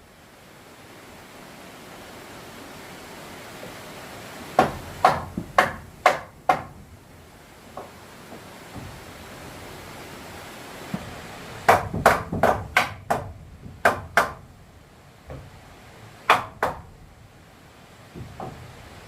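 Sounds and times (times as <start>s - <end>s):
sharp knocks: 4.6s - 6.9s, 10.9s - 14.5s, 16.2s - 17.0s, 18.1s - 18.8s.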